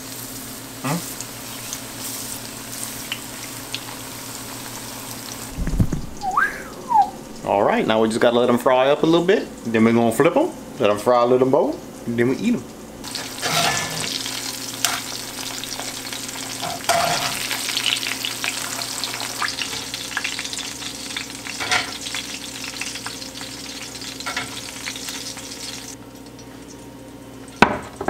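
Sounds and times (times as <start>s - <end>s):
fish frying in hot oil: 0.0s - 6.4s, 12.4s - 28.0s.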